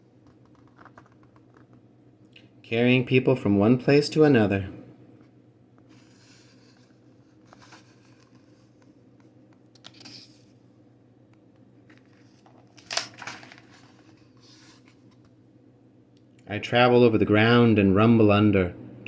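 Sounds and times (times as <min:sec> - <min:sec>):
faint steady hum: 0:00.0 - 0:19.0
paper rustling and crinkling: 0:05.9 - 0:10.6, 0:11.8 - 0:15.3.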